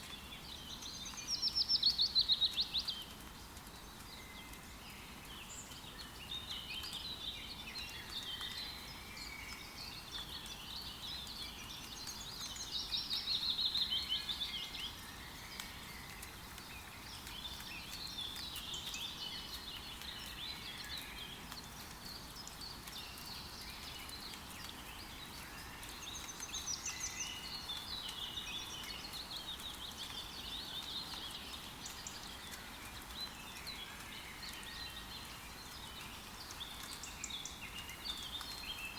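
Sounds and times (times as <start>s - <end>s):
forest birds chirping and trilling: 0.0s - 38.9s
rain pattering: 0.0s - 38.9s.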